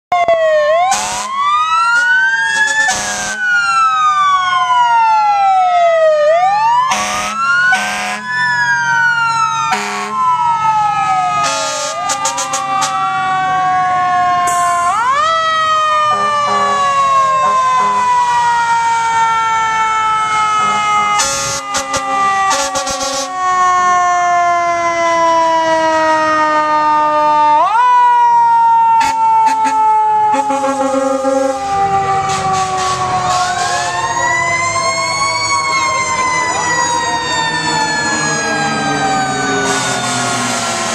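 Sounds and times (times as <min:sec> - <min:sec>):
fire truck sirens wailing: 0:00.1 - 0:40.9
horn blasts: 0:02.0 - 0:03.4, 0:06.9 - 0:08.2, 0:09.7 - 0:10.2, 0:16.1 - 0:18.1, 0:20.6 - 0:23.3, 0:29.0 - 0:33.9.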